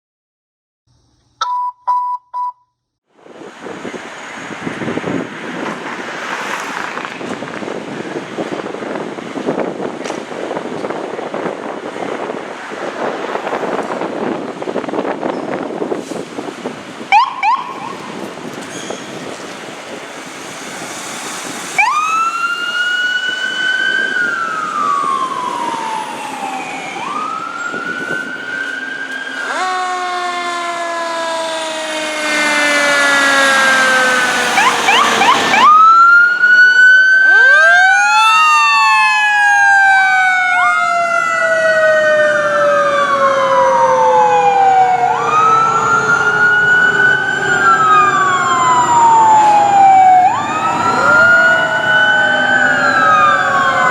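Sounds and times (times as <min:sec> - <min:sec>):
fire sirens wailing: 0:07.0 - 0:53.9
lower siren tones sliding down: 0:17.1 - 0:18.4, 0:21.5 - 0:53.9.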